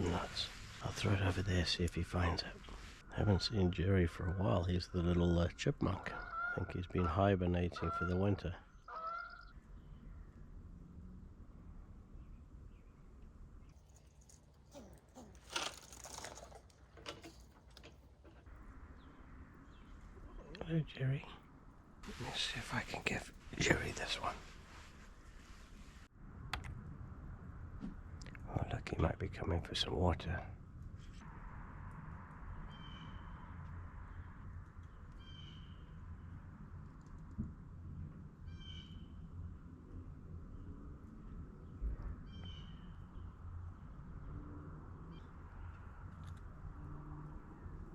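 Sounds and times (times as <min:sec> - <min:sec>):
bird calling: 0:06.1 - 0:10.1, 0:13.8 - 0:24.7
walnuts rustling and crackling: 0:13.7 - 0:18.8
walnut crunch: 0:13.8 - 0:18.4.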